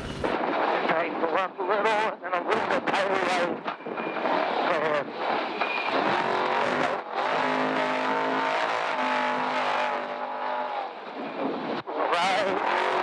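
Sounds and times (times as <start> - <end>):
truck engine running hard: 0.0 - 0.4.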